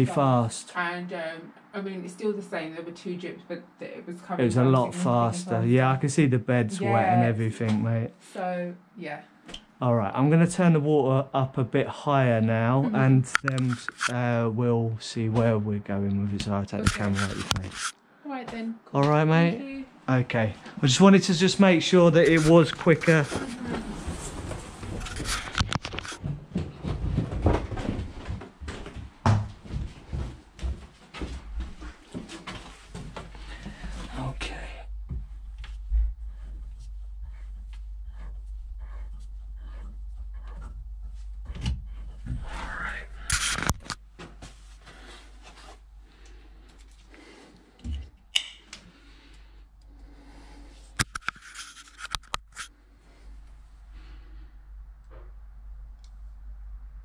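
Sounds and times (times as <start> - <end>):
knocks and bumps indoors: 26.0 - 32.2.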